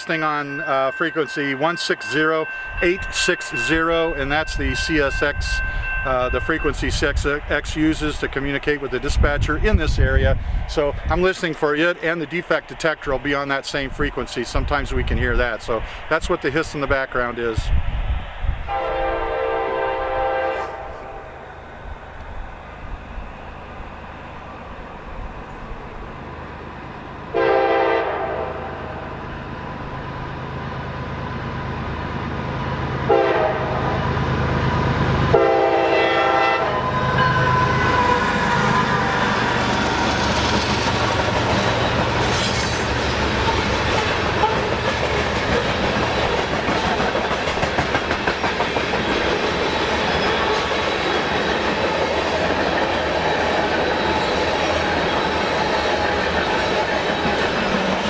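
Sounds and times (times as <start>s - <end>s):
diesel locomotive engines passing: 0.0s - 58.0s
train horn blasts: 18.7s - 21.5s, 27.3s - 29.1s, 33.0s - 34.1s, 35.2s - 39.5s, 43.9s - 44.7s
freight cars rolling on rails: 36.8s - 58.0s
wheels clacking over rail joints: 37.9s - 58.0s.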